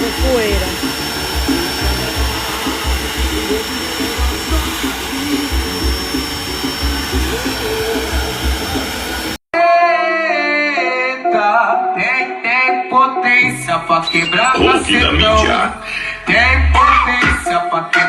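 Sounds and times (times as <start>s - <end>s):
bass-heavy music with thumping beats: 0.0s - 9.4s, 16.3s - 17.6s
vacuum cleaner running: 0.0s - 9.4s.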